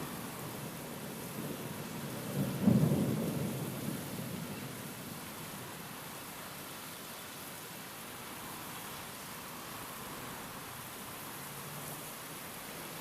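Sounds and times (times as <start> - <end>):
steady rainfall: 0.0 - 13.0
thunder rumbling: 2.2 - 4.5.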